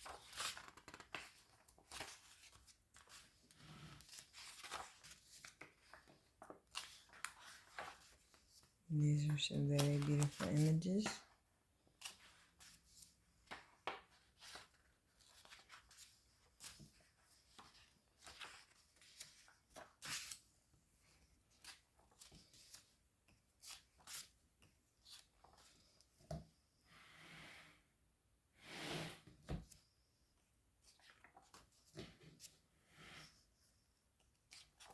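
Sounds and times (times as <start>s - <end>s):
book pages turning: 0.0s - 11.4s, 12.0s - 20.5s, 23.6s - 24.4s, 25.0s - 26.0s, 30.8s - 32.6s.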